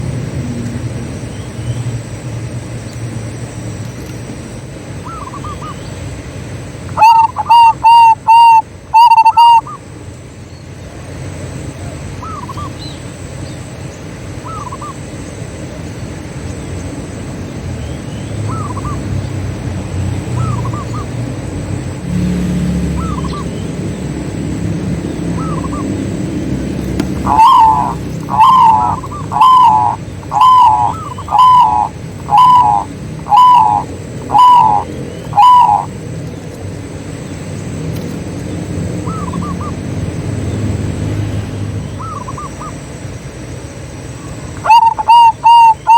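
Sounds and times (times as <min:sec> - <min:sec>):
doves cooing: 0:05.0 - 0:06.2, 0:06.9 - 0:09.8, 0:18.4 - 0:43.0, 0:44.1 - 0:45.9.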